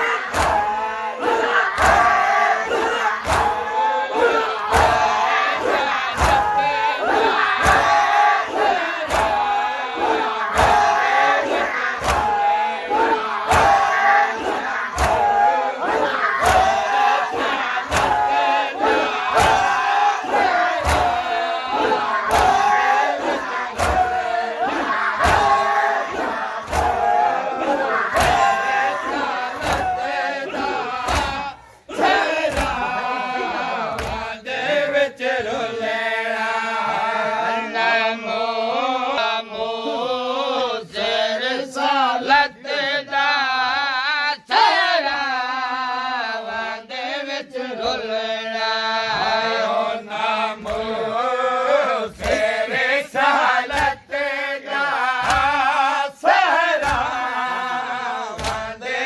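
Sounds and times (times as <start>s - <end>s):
hands slapping chests: 0.0s - 33.0s, 33.8s - 34.3s, 50.6s - 51.0s, 52.1s - 52.6s, 53.2s - 54.1s, 54.7s - 55.8s, 56.8s - 57.4s, 58.0s - 58.8s
men chanting a lament: 0.0s - 59.0s.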